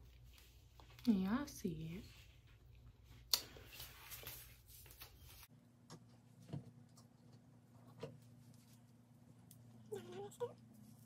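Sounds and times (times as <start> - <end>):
faint rustling and handling: 0.0 - 5.5.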